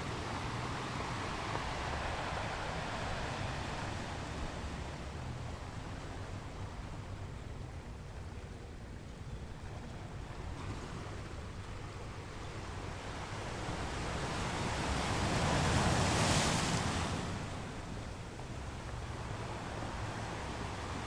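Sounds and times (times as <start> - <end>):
ocean waves breaking: 0.0 - 6.9, 12.8 - 21.0.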